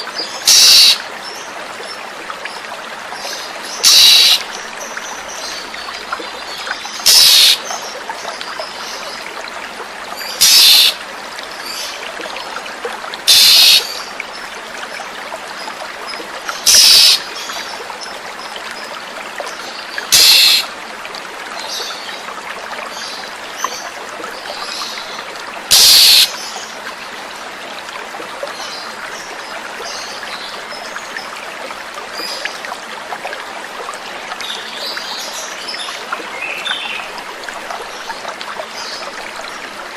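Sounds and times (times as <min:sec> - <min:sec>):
running water: 0:00.0 - 0:39.9
bird short loud calls: 0:00.5 - 0:01.0, 0:03.8 - 0:04.4, 0:07.1 - 0:07.6, 0:10.4 - 0:11.0, 0:13.3 - 0:13.9, 0:16.7 - 0:17.2, 0:20.2 - 0:20.6, 0:25.7 - 0:26.3.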